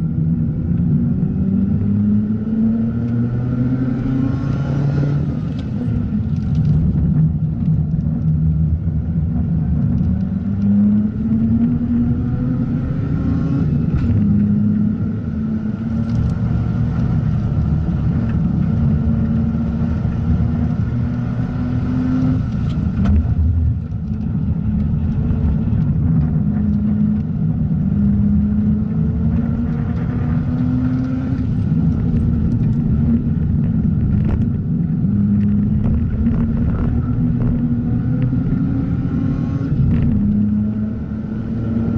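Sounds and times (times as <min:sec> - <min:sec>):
rotary engine revving: 0:24.9 - 0:41.9.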